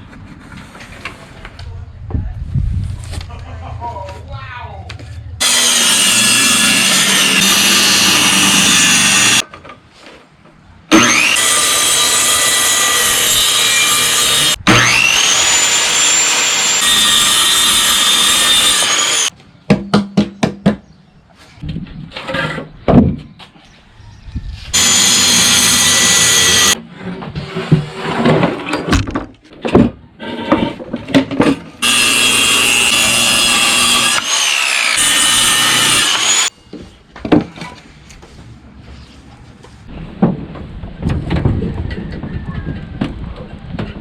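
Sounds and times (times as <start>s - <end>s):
power saw cutting wood: 5.4s - 9.4s, 10.9s - 19.3s, 24.7s - 26.8s, 31.8s - 36.5s
saw blade whine: 5.4s - 9.4s, 10.9s - 19.3s, 24.8s - 26.8s, 31.8s - 36.5s.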